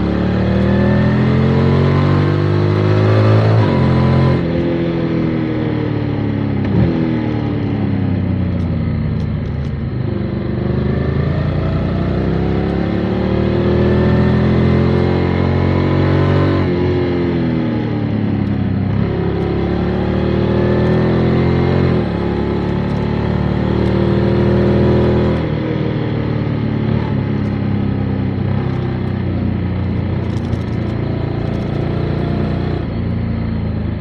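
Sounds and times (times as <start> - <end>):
motorcycle engine changing gear: 18.3 - 25.6, 27.0 - 34.0.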